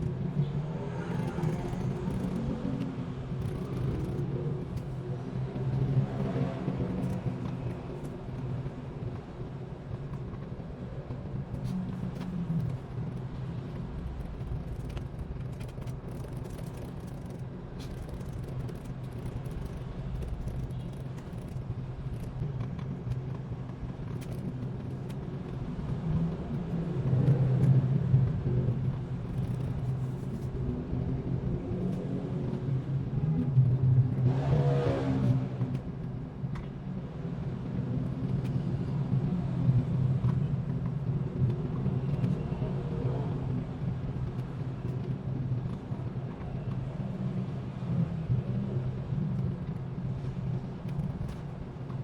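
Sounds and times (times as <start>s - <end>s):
steady low rumble: 0.0s - 34.3s
faint scattered clicks: 11.1s - 30.6s.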